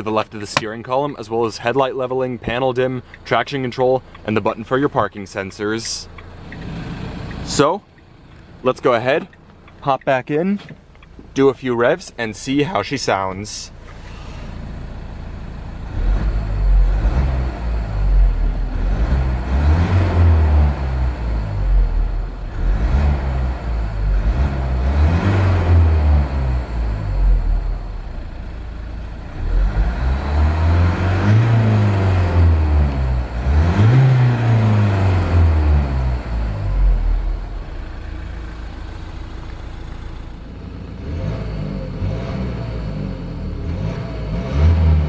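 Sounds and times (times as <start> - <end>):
diesel engine revving: 10.9 - 45.0.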